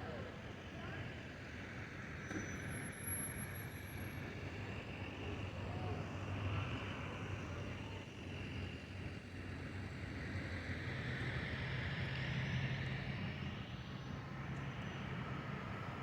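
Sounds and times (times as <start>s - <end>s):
vehicle engine drone: 6.3s - 16.0s.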